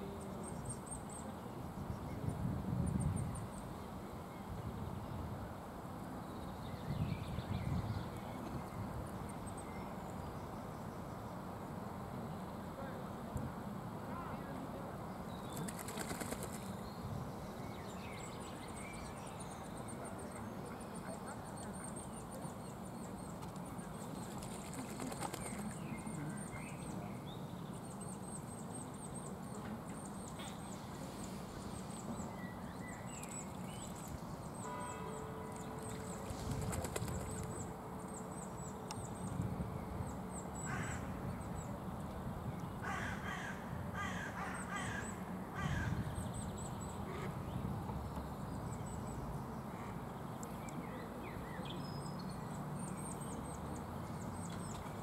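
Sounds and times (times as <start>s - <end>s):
steady background noise: 0.0s - 55.0s
birds harsh calls: 42.8s - 47.5s.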